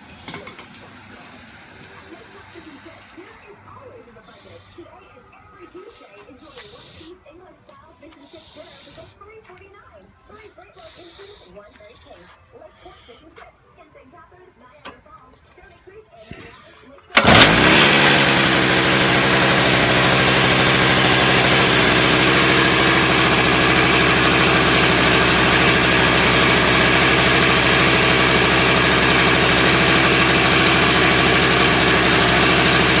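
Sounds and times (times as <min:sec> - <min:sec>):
snowblower engine starting: 0:17.1 - 0:33.0.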